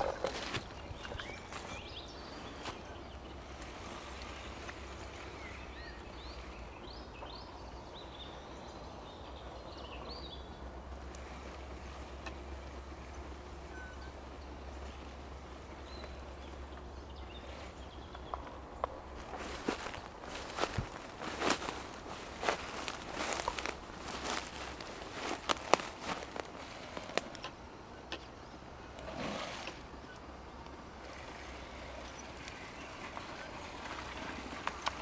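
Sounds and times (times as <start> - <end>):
bird chirping: 0.0 - 3.6.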